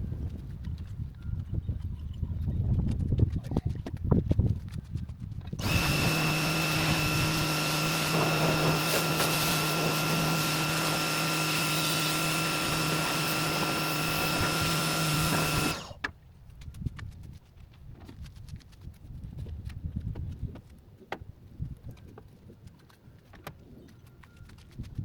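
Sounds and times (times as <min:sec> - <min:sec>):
electric motor whining: 0:05.6 - 0:16.0.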